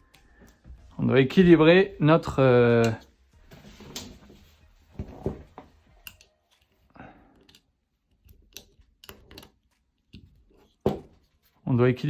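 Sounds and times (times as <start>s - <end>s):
small parts clicking and knocking: 6.0s - 11.0s.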